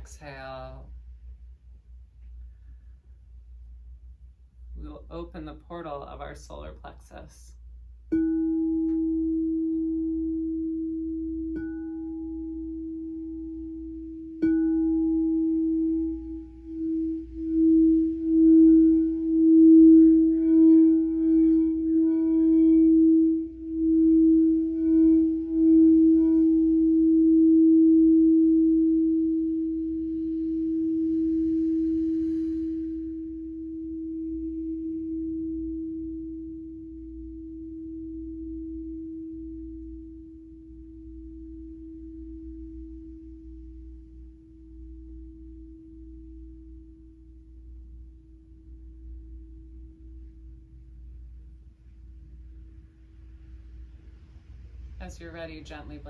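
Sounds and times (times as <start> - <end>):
singing bowl ringing: 8.1 - 50.8.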